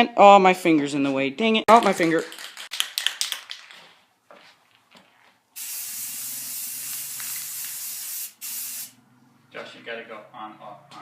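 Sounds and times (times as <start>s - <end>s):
paint sprayer hissing: 5.6s - 9.0s.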